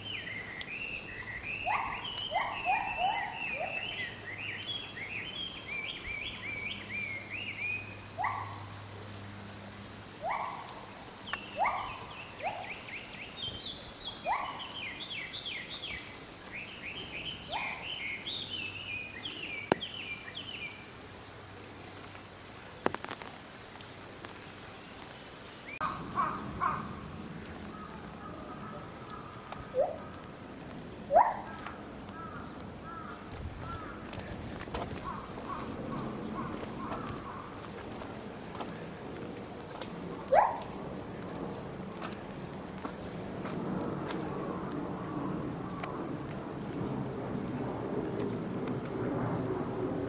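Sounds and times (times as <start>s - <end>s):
rising bird calls: 0.0s - 8.7s, 10.2s - 20.8s, 25.6s - 27.0s, 27.6s - 30.3s, 31.1s - 37.7s
birds chirping: 0.0s - 21.0s, 24.4s - 46.9s.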